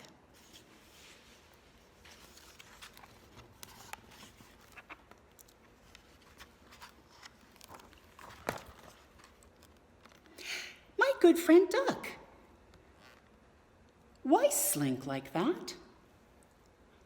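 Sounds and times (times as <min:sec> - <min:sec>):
page turning: 0:00.3 - 0:10.2
book rustling: 0:00.3 - 0:10.4.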